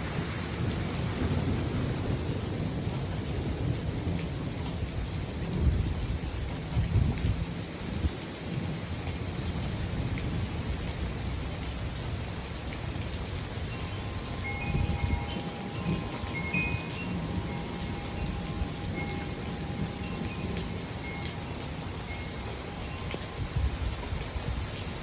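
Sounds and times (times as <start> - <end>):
rolling thunder: 0.0 - 7.6
rain falling: 0.0 - 25.0.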